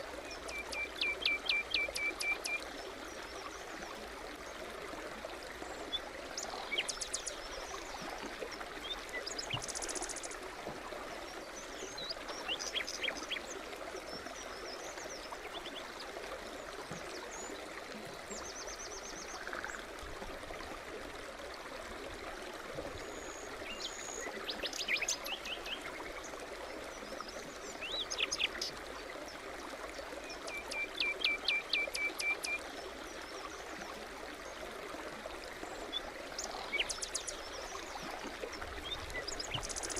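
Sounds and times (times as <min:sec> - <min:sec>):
stream burbling over stones: 0:00.0 - 0:39.9.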